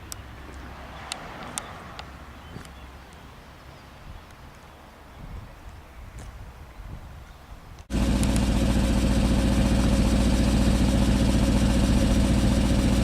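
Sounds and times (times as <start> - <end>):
loud car engine idling: 7.9 - 13.0.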